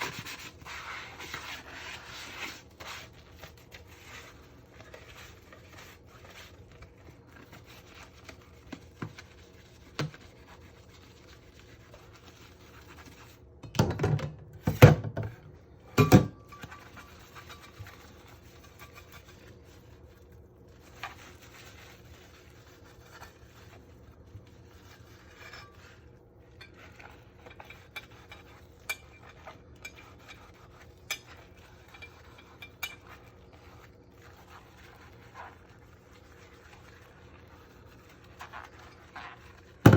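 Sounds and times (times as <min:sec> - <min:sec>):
dishes scrubbed by hand: 0:00.0 - 0:13.4, 0:15.7 - 0:39.9
dishes clinking and clattering: 0:13.7 - 0:16.8.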